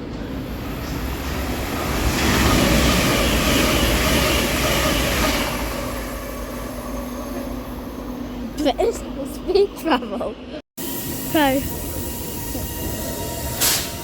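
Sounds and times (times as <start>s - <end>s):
train rushing past: 0.0s - 10.0s.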